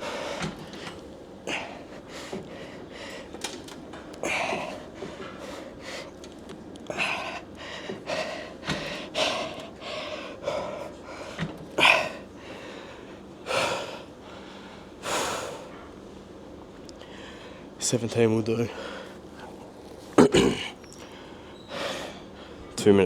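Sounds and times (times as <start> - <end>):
man breathing hard and gasping: 0.0 - 3.4, 4.2 - 6.2, 6.9 - 15.9.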